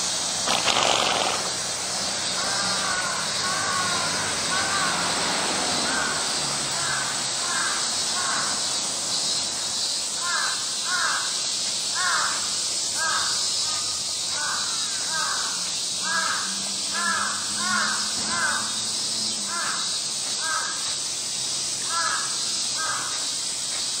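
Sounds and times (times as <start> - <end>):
steady high hiss: 0.0 - 24.0
bird calling: 0.5 - 1.6.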